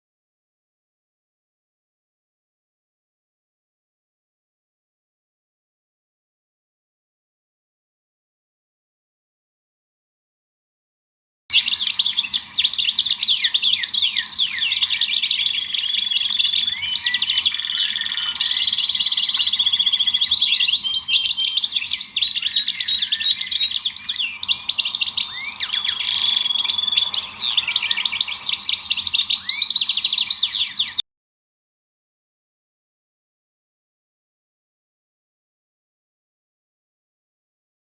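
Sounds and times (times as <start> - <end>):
songbirds chirping and singing: 11.5 - 31.0.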